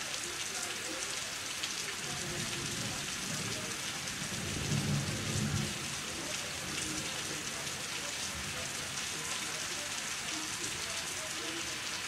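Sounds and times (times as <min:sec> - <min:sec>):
rain hiss: 0:00.0 - 0:12.0
low roll of thunder: 0:02.7 - 0:06.0.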